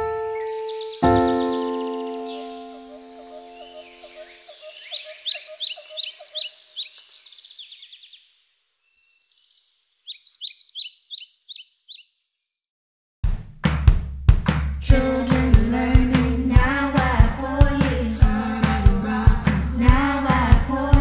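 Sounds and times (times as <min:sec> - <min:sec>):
held music chord: 0:00.0 - 0:04.0
bird trill: 0:00.0 - 0:12.6
bird chirping: 0:00.0 - 0:12.7.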